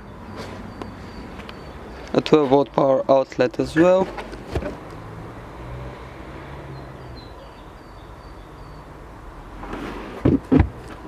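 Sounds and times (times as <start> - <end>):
bird chirping: 0.0 - 2.2, 6.7 - 9.0.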